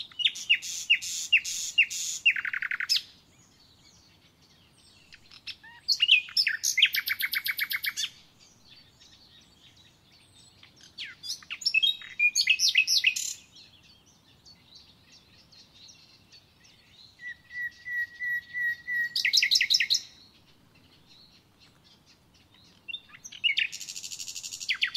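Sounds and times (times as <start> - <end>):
songbird trilling: 0.0 - 24.9.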